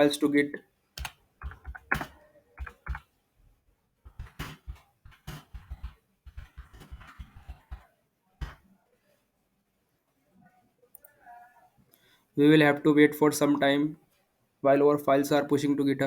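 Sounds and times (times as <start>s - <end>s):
computer keyboard typing: 1.0s - 3.0s, 4.1s - 7.8s.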